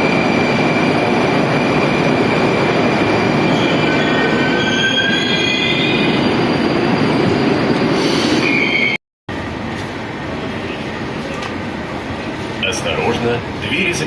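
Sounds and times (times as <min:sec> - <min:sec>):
train rumble: 0:00.0 - 0:08.6, 0:09.3 - 0:14.0
metro train wheels squealing: 0:00.0 - 0:09.0.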